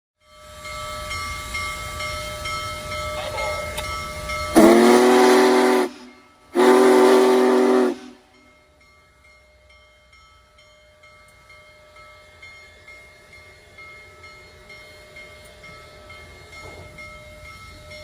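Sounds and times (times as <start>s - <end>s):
model train humming: 0.2s - 18.0s
train whistle blasts: 4.5s - 8.4s.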